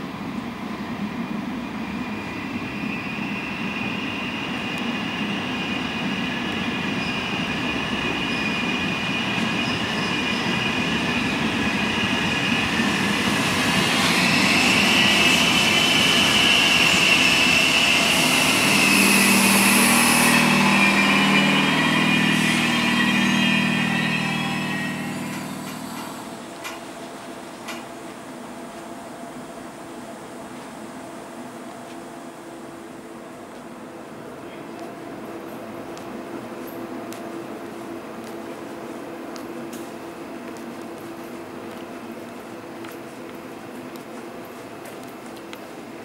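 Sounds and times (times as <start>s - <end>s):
train rolling rumble: 0.0s - 46.0s
high wheel squeal: 2.0s - 26.4s
locomotive low hum: 13.0s - 27.9s.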